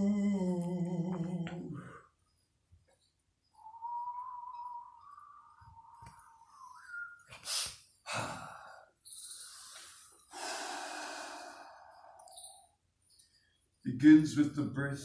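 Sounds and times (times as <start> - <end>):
sharp forceful breaths: 7.4 - 12.7
long breathy exhale: 7.5 - 12.6.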